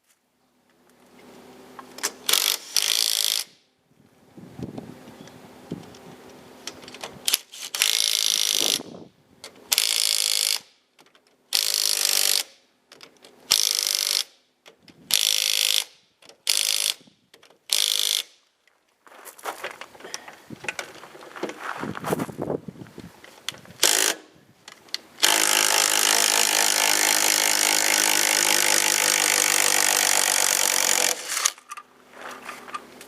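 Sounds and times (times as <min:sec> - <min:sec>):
impact wrench bursts: 0:02.0 - 0:03.6, 0:07.2 - 0:08.9, 0:09.7 - 0:10.7, 0:11.5 - 0:12.6, 0:13.5 - 0:14.4, 0:15.1 - 0:18.4, 0:23.8 - 0:24.4, 0:25.2 - 0:31.7.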